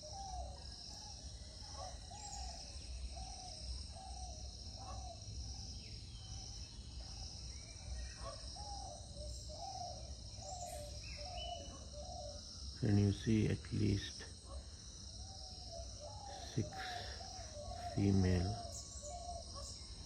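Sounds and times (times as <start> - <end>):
high insect chorus: 0.0 - 20.0.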